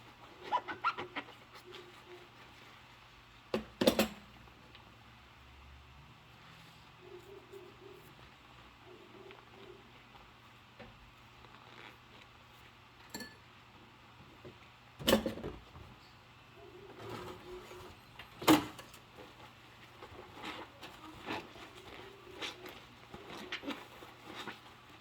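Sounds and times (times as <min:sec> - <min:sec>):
rubber gloves squeaking: 0:00.0 - 0:02.9, 0:11.3 - 0:12.4, 0:19.2 - 0:25.0.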